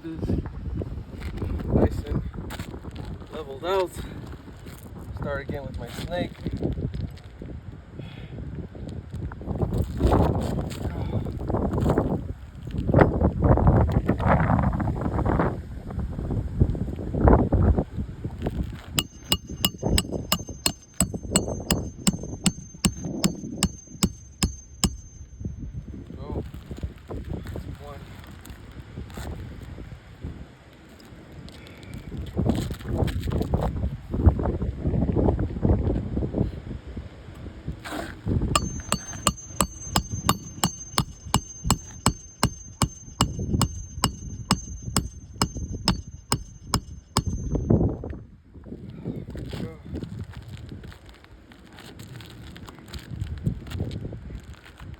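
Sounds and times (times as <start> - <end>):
hammer striking metal: 19.0 - 25.8, 38.6 - 47.8.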